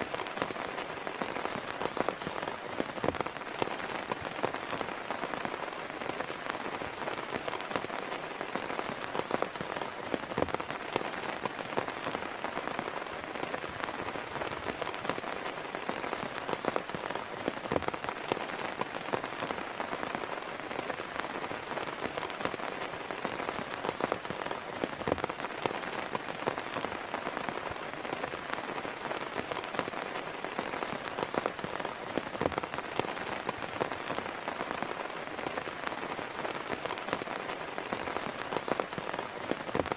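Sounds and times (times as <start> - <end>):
heavy rain hiss: 0.0 - 39.9
raindrops tapping close by: 0.0 - 39.9.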